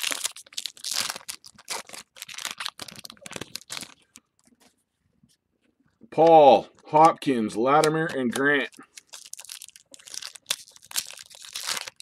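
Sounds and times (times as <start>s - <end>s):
foil wrappers crinkling and tearing: 0.0s - 4.5s, 7.8s - 12.0s
cards rustling: 0.0s - 4.7s, 6.2s - 12.0s.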